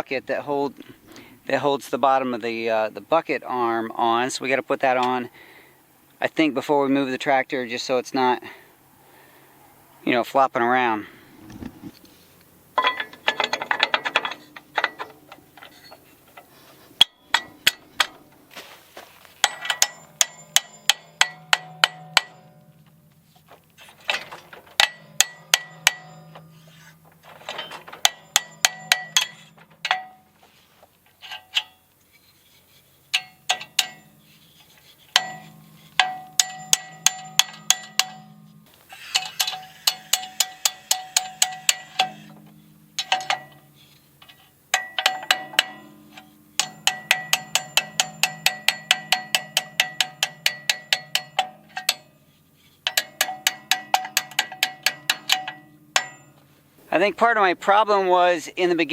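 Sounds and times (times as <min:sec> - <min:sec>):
hammer striking steel: 0:19.4 - 0:22.8, 0:24.1 - 0:30.3, 0:34.9 - 0:38.5, 0:39.1 - 0:43.7, 0:44.7 - 0:52.1, 0:52.8 - 0:56.4.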